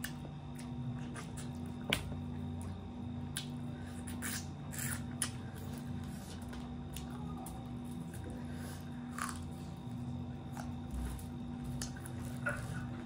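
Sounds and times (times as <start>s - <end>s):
person chewing food: 0.0s - 13.0s
steady low hum: 0.0s - 13.0s.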